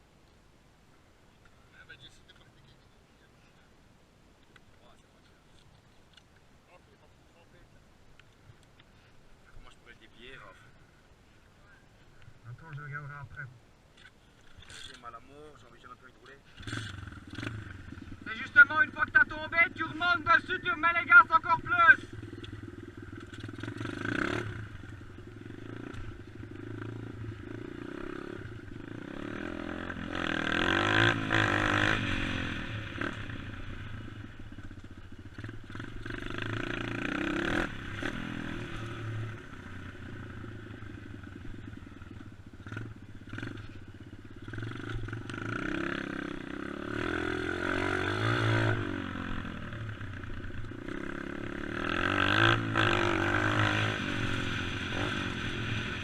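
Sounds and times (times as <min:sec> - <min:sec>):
dirt bike engine revving: 0:16.5 - 0:56.0.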